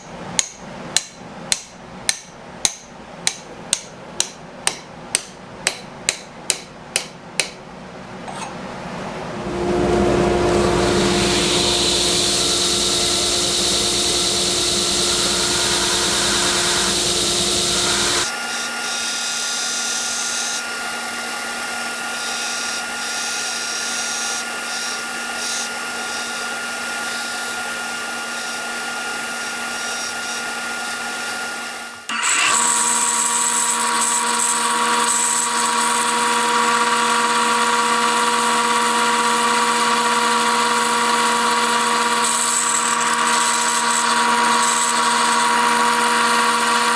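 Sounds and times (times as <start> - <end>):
power tools whining: 9.5 - 46.9.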